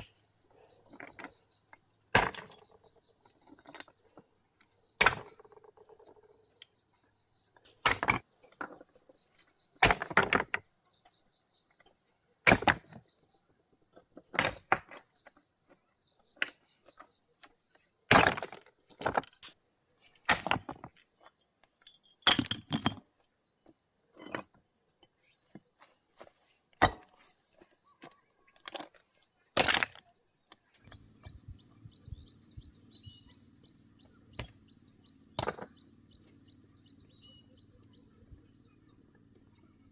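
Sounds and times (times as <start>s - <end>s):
hand tool striking stone: 2.2s - 2.6s, 5.0s - 5.4s, 7.8s - 8.3s, 26.8s - 27.2s, 35.4s - 35.7s.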